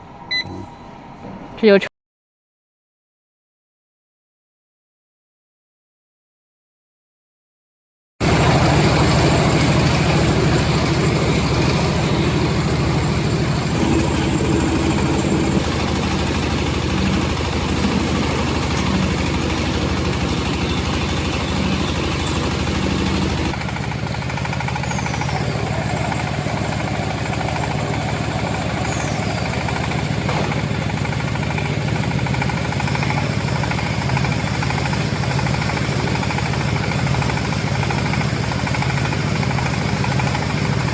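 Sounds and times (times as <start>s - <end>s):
baler machine humming: 0.0s - 1.8s, 8.2s - 40.9s.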